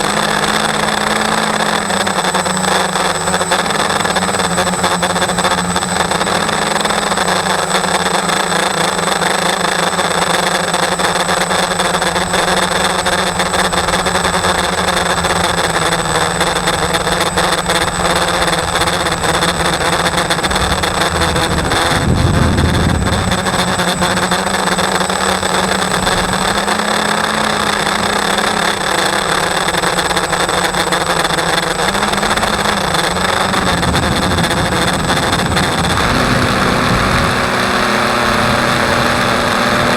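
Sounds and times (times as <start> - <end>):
electric motor whining: 0.0 - 39.9
brief low rumble: 19.6 - 24.2.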